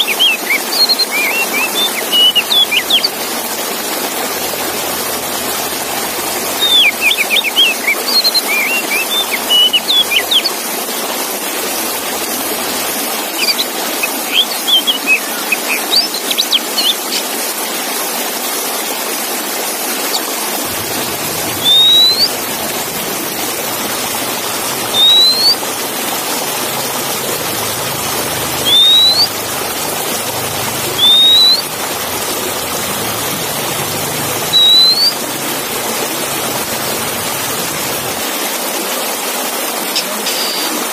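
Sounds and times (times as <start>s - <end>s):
rising bird whistles: 0.0s - 3.3s, 4.5s - 10.5s, 20.7s - 38.2s
bird chirping song: 0.0s - 10.6s, 12.0s - 17.3s, 20.1s - 38.2s
steady rushing noise: 20.4s - 38.4s.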